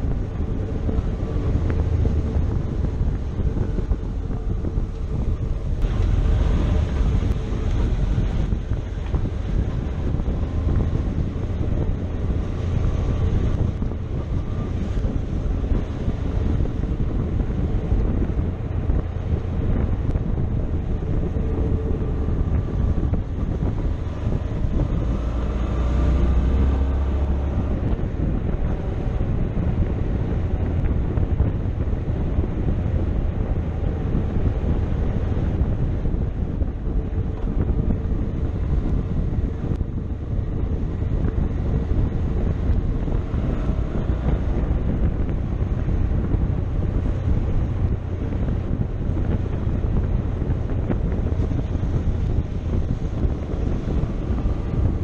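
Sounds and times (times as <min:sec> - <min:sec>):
motorcycle engine running: 0:00.0 - 0:25.1
wind noise on microphone: 0:00.0 - 0:55.0.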